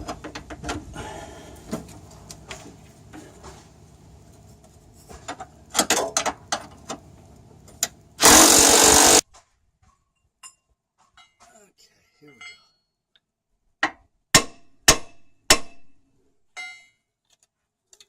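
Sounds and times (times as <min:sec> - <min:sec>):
cordless impact wrench burst: 0:08.2 - 0:09.2.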